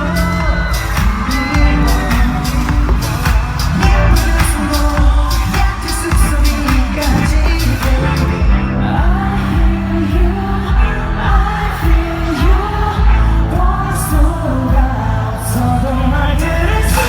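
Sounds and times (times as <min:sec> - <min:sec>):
heavy bass beat: 0:00.0 - 0:17.0
man singing: 0:00.0 - 0:17.0.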